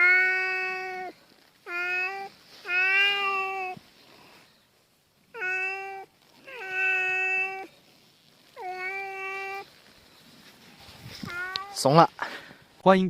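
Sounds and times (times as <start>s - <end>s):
cat yowling: 0.0s - 3.8s, 5.3s - 7.8s, 8.4s - 9.9s, 10.9s - 12.0s.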